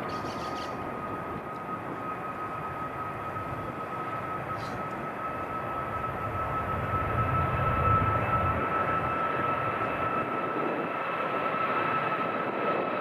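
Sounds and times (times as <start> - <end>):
high whine: 0.0 - 10.9
jet engines rushing: 0.0 - 13.0.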